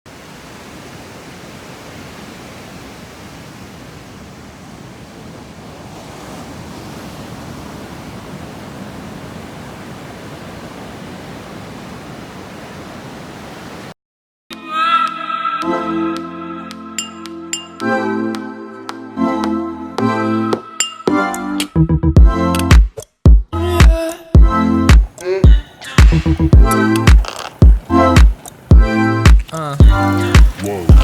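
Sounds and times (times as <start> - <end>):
ocean surf rushing: 0.1 - 14.0, 24.4 - 31.0.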